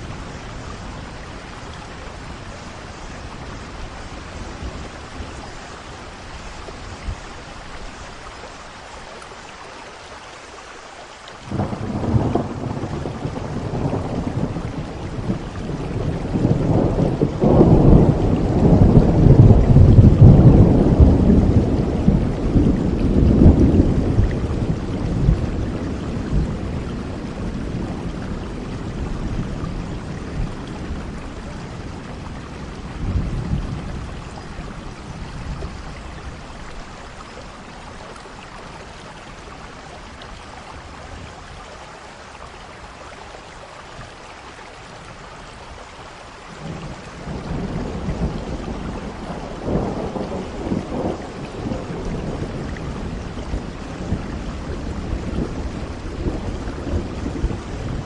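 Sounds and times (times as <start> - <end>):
steady rain: 0.0 - 58.0
rolling thunder: 11.5 - 37.5, 46.6 - 58.0.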